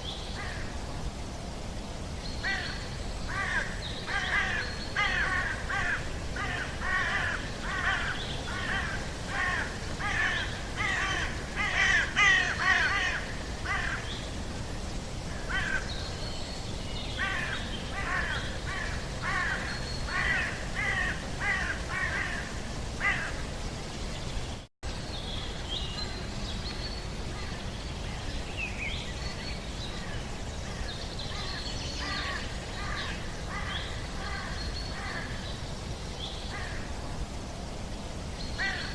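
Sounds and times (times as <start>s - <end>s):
background hiss: 0.0s - 38.9s
birds harsh repeated calls: 2.4s - 14.4s, 17.2s - 23.6s, 29.9s - 35.6s.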